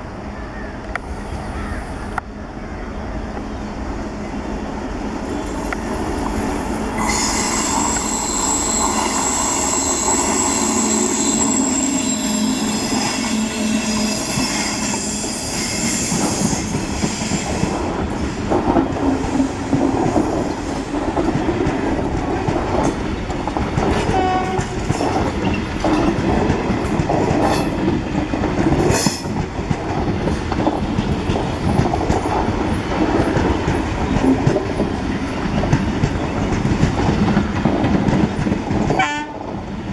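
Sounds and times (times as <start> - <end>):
train passing: 0.0 - 39.9
long high steady tone: 1.8 - 17.6.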